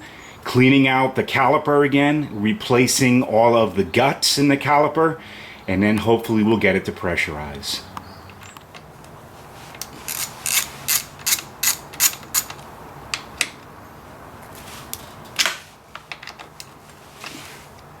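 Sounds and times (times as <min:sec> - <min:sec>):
ratchet wrench clicking: 0:10.1 - 0:12.6.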